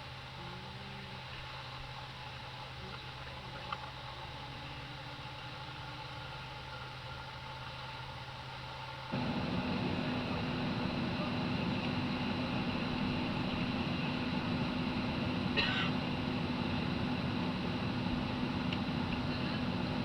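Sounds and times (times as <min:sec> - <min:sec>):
airliner cabin ventilation hum: 0:00.4 - 0:20.0
low drone: 0:09.2 - 0:20.0.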